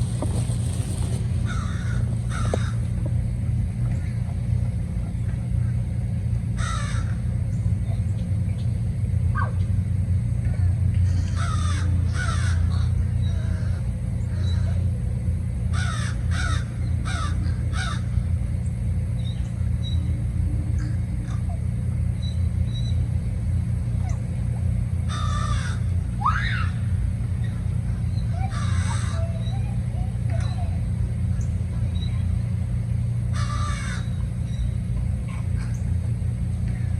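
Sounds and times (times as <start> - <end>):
birds cawing: 0.0 - 4.2, 5.5 - 7.6, 11.0 - 15.0, 15.6 - 20.0, 24.9 - 32.1, 32.8 - 36.9.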